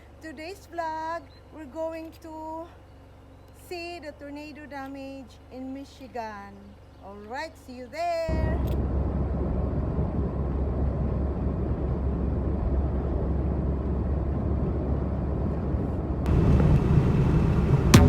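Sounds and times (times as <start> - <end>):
car road noise rumble: 8.0 - 18.0.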